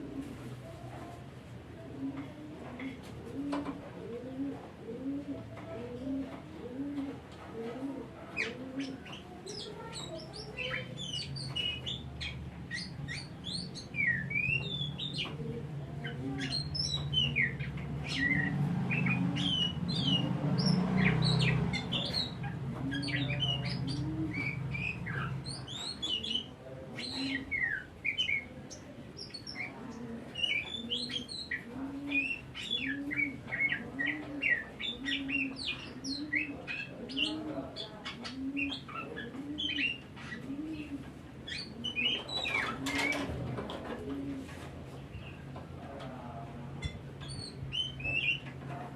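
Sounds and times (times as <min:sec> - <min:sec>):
dove cooing: 0:00.0 - 0:01.2, 0:01.8 - 0:44.6.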